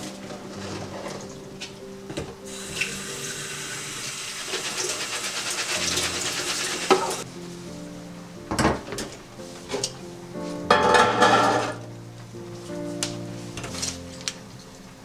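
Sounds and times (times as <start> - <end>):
soft background music: 0.0 - 15.0
tap running into sink: 2.2 - 7.2.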